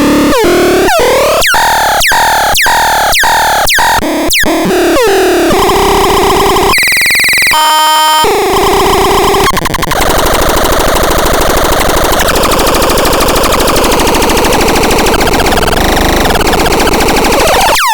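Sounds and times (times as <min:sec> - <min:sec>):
synthesizer sounds: 0:09.0 - 0:17.9.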